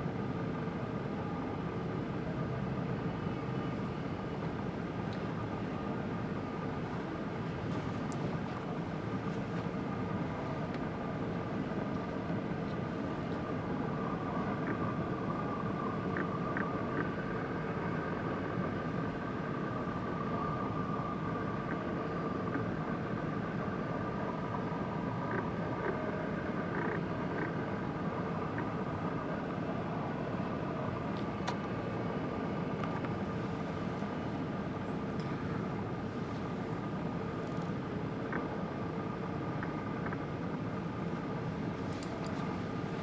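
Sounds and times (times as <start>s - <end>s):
engine drone with whine: 0.0s - 43.0s
faint clicks: 41.8s - 42.6s.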